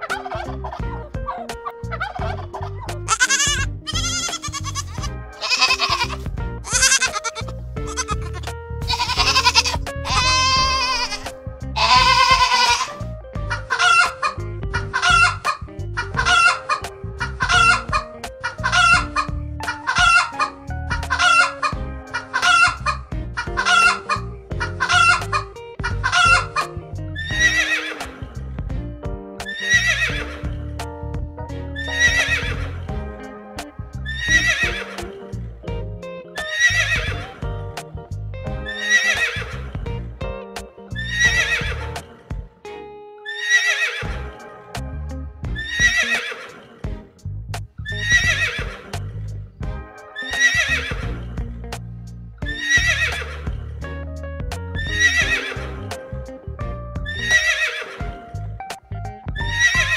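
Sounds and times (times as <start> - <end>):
chickens clucking: 0.0 - 3.3
background music: 0.0 - 59.9
pony whinnying: 3.1 - 13.0, 27.2 - 28.0, 29.5 - 30.2, 36.5 - 37.2, 43.3 - 44.1, 45.6 - 46.6, 47.9 - 48.8, 52.5 - 53.2, 54.8 - 55.7, 57.1 - 58.0, 59.4 - 59.9.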